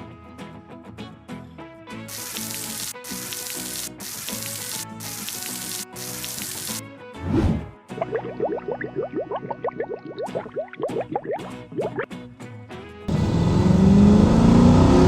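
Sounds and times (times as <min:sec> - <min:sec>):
hissing sound effect: 0:02.1 - 0:06.8
cartoon background music: 0:04.4 - 0:13.0.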